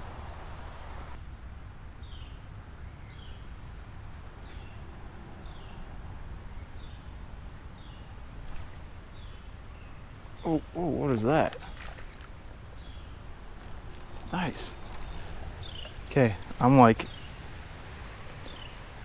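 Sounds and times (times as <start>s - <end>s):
bird chirping: 9.1s - 19.0s.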